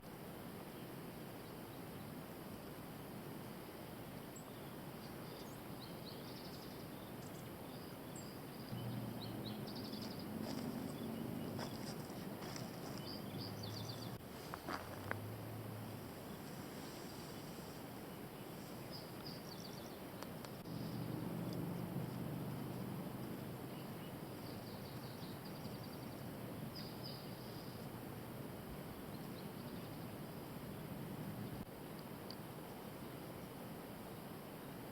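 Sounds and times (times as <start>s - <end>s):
outdoor background noise: 0.0s - 34.9s
low steady hum: 0.1s - 31.7s
faint high bird chirps: 4.3s - 14.2s
small birds chirping: 4.3s - 22.0s, 22.6s - 27.9s
steady hiss: 11.6s - 21.0s.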